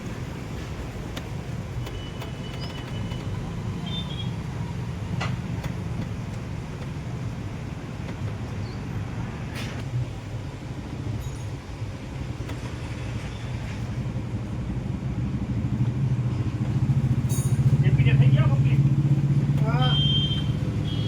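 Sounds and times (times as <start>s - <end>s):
car engine idling: 14.2s - 21.0s.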